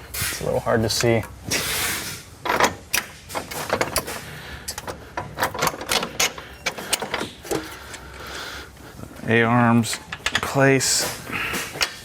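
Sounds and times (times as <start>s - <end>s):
metal tools clicking and knocking: 2.4s - 8.2s, 9.8s - 12.0s.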